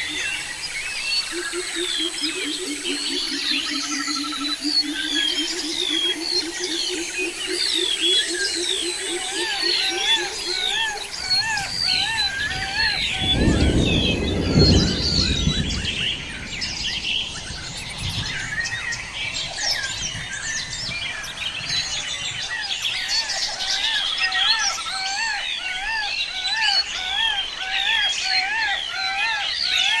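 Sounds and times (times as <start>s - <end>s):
birds chirping and singing: 0.0s - 30.0s
low rumble: 11.8s - 21.1s.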